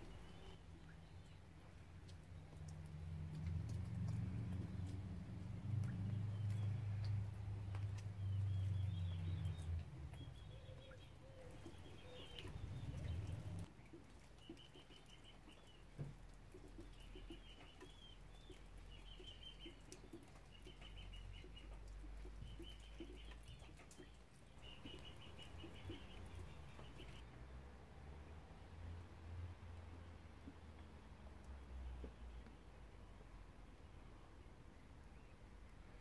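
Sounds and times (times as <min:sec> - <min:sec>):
bird chirping trills: 0:06.0 - 0:13.7, 0:17.0 - 0:27.2.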